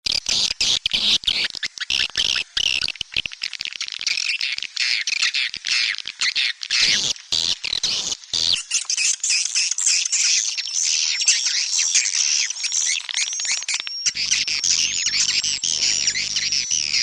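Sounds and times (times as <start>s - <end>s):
swiftlets chattering and twittering: 12.4s - 17.0s.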